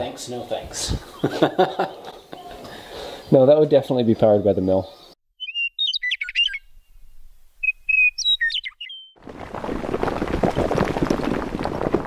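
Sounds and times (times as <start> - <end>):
songbird singing: 1.0 - 9.2
crumbling stone crackling: 9.2 - 12.0.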